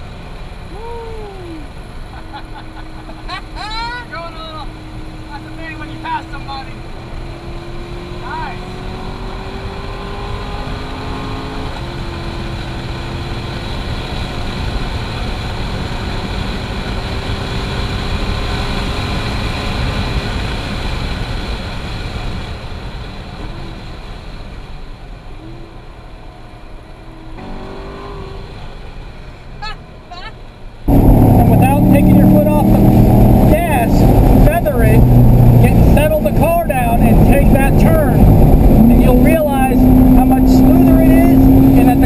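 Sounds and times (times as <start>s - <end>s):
road and wind noise: 0.0s - 42.0s
car engine revving: 1.5s - 21.4s, 25.4s - 29.2s, 30.8s - 42.0s.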